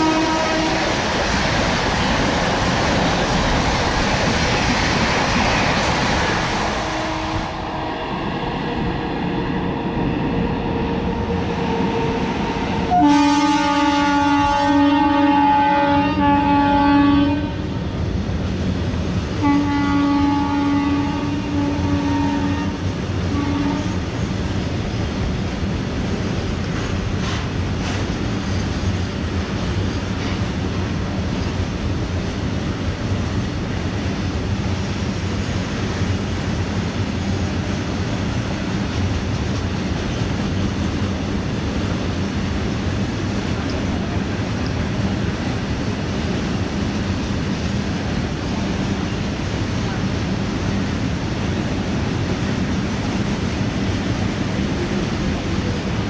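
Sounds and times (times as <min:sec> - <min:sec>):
locomotive horn blasts: 0:00.0 - 0:00.9, 0:06.8 - 0:07.9, 0:12.9 - 0:17.6, 0:19.4 - 0:24.0
freight train rumble and clatter: 0:00.0 - 0:56.0.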